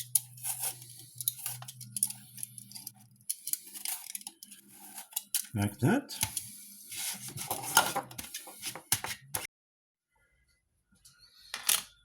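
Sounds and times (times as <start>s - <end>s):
utensils and pot clattering: 0.0s - 9.5s.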